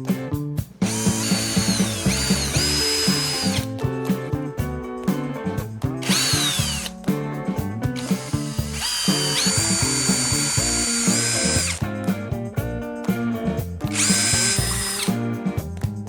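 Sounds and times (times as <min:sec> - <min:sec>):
background music with a beat: 0:00.0 - 0:16.0
power drill whining: 0:00.8 - 0:03.7, 0:06.0 - 0:06.9, 0:08.0 - 0:11.8, 0:13.9 - 0:15.2.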